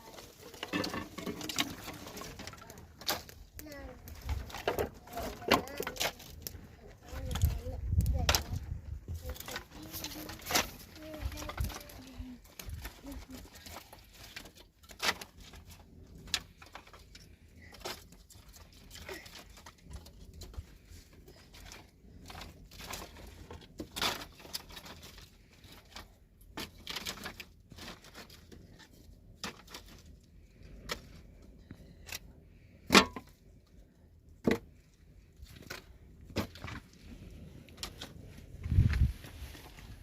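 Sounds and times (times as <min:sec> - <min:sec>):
rustling: 0:00.0 - 0:33.8, 0:34.6 - 0:40.0.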